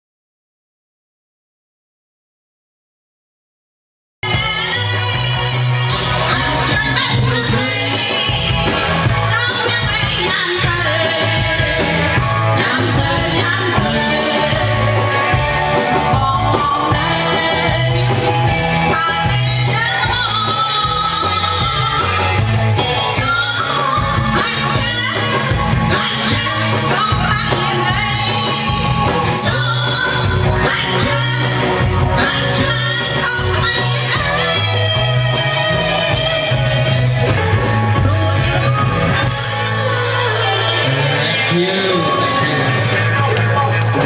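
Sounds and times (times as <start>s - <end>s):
steady drum beat: 4.2s - 38.4s
bass: 4.2s - 44.0s
electric guitar: 4.2s - 44.0s
person singing: 4.2s - 44.0s.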